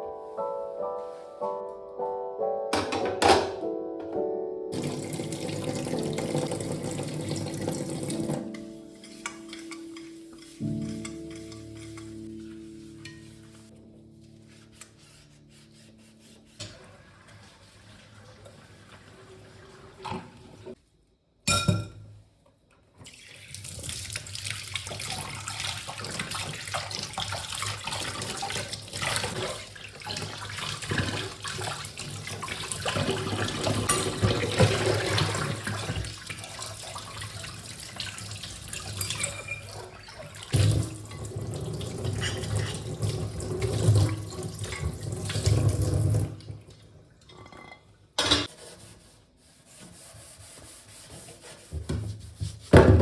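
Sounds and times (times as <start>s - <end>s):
tap water splashing into sink: 4.8s - 8.4s, 23.0s - 46.9s.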